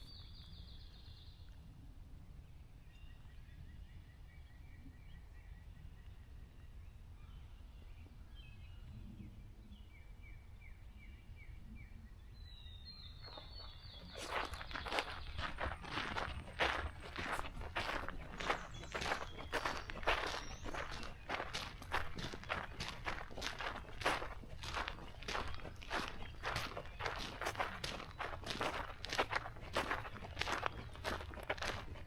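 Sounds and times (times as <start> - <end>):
songbirds singing faintly: 0.0 - 32.0
footsteps on a trail: 13.2 - 32.0.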